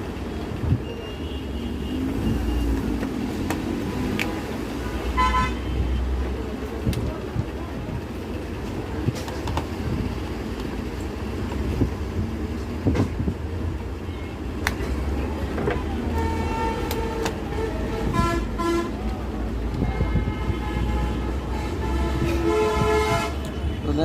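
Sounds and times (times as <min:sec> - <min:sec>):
road traffic rumbling: 0:00.0 - 0:24.0
vehicle horns honking: 0:00.8 - 0:02.8, 0:05.0 - 0:06.2, 0:16.1 - 0:19.0, 0:19.8 - 0:24.0.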